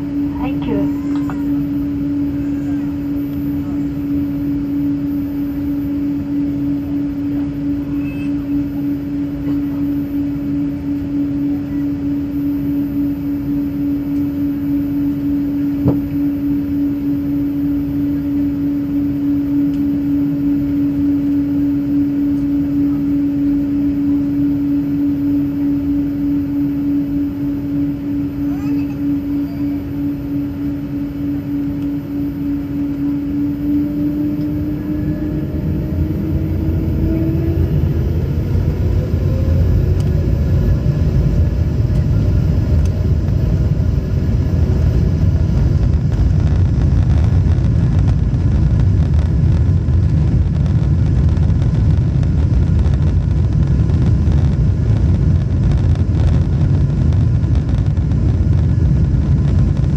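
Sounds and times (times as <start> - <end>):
jet engines from inside cabin: 0.0 - 59.9.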